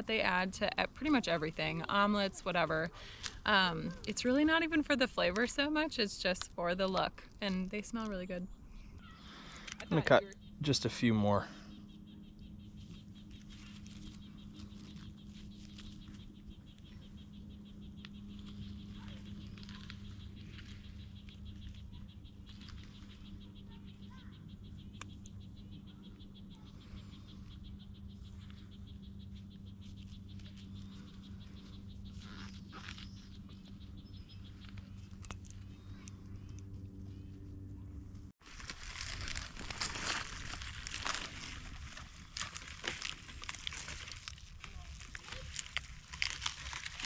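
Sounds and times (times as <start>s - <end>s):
low steady hum: 0.0s - 47.0s.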